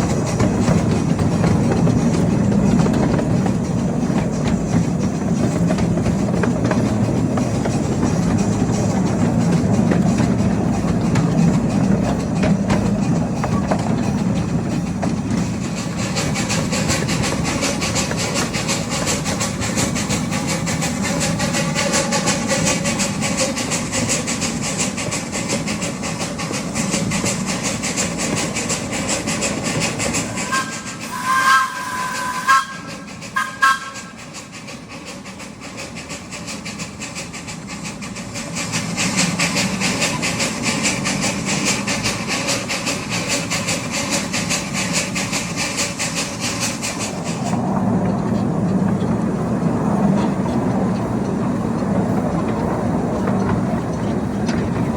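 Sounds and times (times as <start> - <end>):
miniature train rumbling on track: 0.0 - 54.9
rail clatter: 0.0 - 54.9
two-note train whistle: 30.4 - 34.3.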